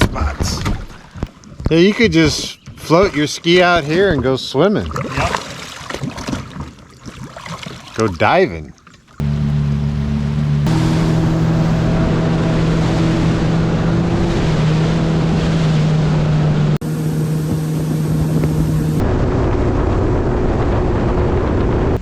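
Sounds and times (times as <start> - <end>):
water rushing: 0.0 - 19.2
jet ski engine running: 9.0 - 22.0
wind buffeting microphone: 9.2 - 22.0.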